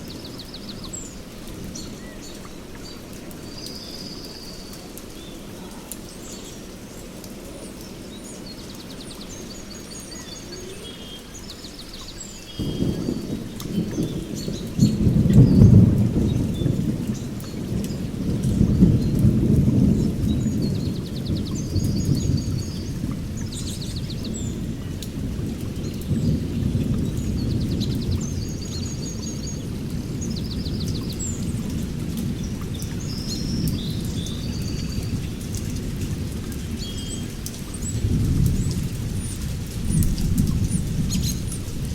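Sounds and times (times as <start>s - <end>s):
steady rain: 0.0s - 41.9s
thunder rumbling: 12.6s - 41.9s
birds chirping and trilling: 38.6s - 41.9s.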